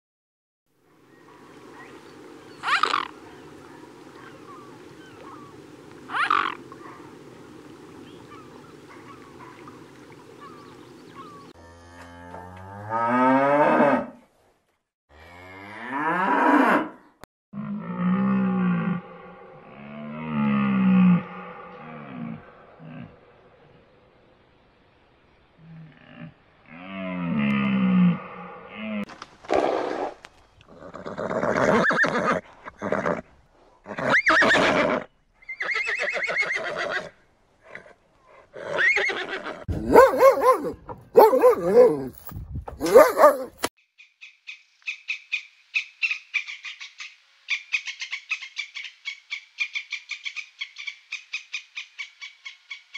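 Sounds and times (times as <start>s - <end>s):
animal calling: 1.8s - 7.2s, 8.1s - 11.6s
cow mooing: 11.6s - 14.2s, 17.6s - 23.2s, 25.6s - 29.1s
horse neighing: 30.7s - 33.2s, 33.9s - 37.2s, 38.6s - 39.7s
small dog yapping: 42.8s - 43.7s.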